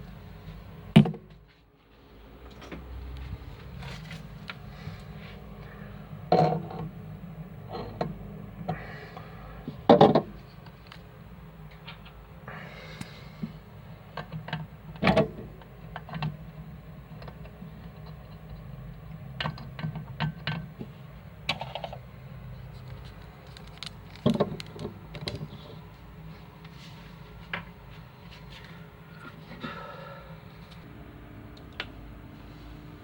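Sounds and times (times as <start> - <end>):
low hum: 24.6 - 33.0.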